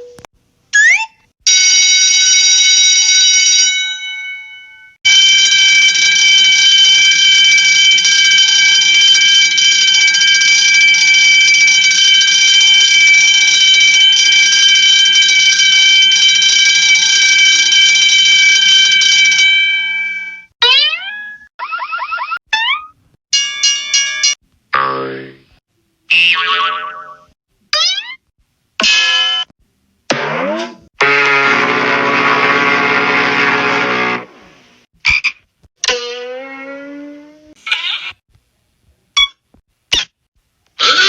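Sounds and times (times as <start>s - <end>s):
alarm bell ringing: 1.5s - 20.5s, 23.4s - 24.4s.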